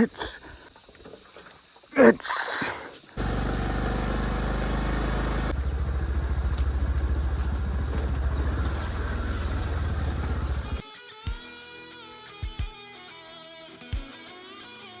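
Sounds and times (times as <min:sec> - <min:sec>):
motorcycle engine running: 0:03.2 - 0:10.8.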